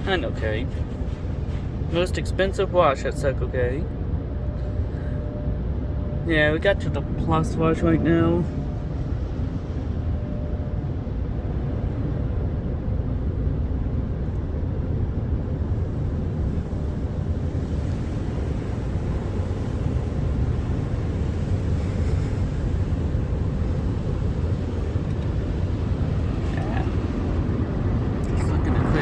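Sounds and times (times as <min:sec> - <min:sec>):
car wash equipment running: 0:00.0 - 0:29.0
water spraying onto car: 0:15.8 - 0:29.0.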